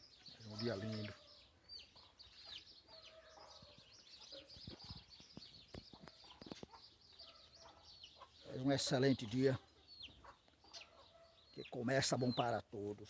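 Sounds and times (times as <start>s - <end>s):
faint birdsong chirps: 0.0s - 13.0s
hens clucking: 0.4s - 12.6s.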